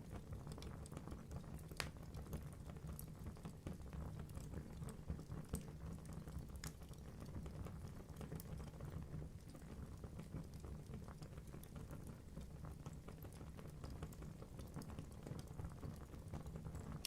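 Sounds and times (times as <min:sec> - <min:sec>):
low rumble of flame: 0:00.0 - 0:17.0
logs crackling and popping: 0:00.2 - 0:03.1, 0:05.5 - 0:07.0.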